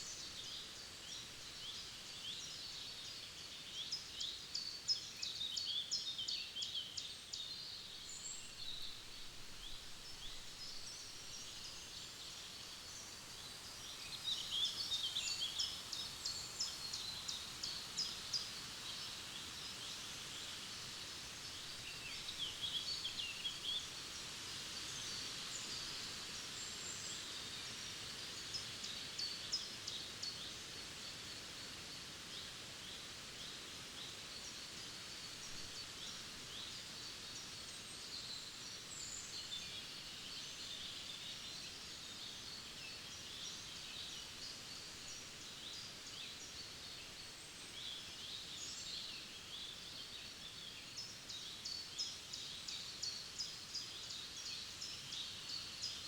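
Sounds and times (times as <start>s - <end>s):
songbirds singing and chirping: 0.0s - 24.0s
faint steady background hiss: 0.0s - 56.0s.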